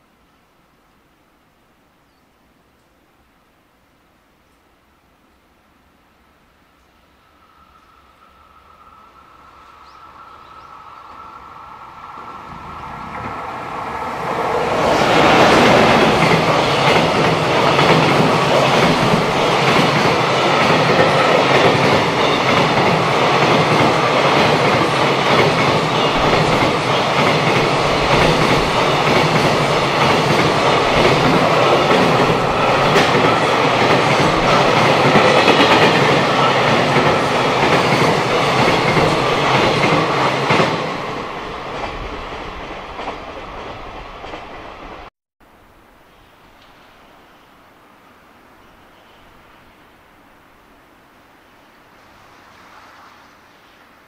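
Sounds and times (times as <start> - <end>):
electric locomotive passing: 6.3 - 54.0
freight wagon wheels on rails: 14.5 - 45.1.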